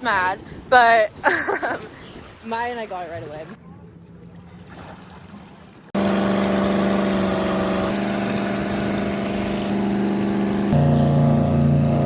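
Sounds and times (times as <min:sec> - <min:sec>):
motorboat engine running: 0:02.8 - 0:12.0.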